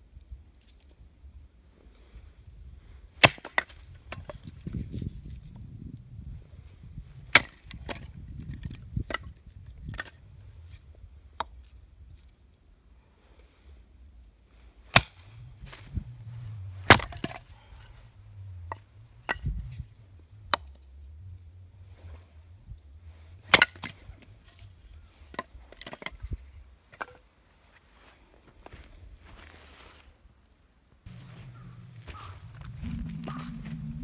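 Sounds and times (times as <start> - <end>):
dry wood snapping: 3.2 - 4.3, 7.3 - 9.2, 14.9 - 17.8, 23.4 - 24.7.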